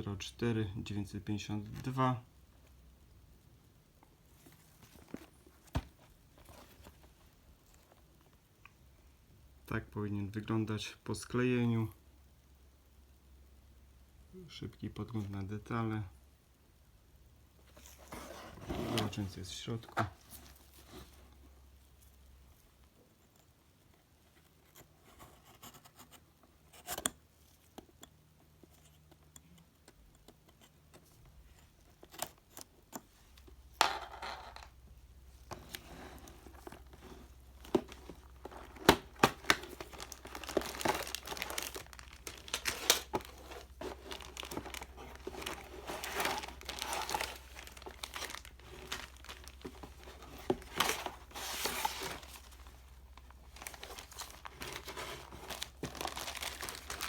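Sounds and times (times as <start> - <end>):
plastic bags crinkling: 35.6 - 57.0.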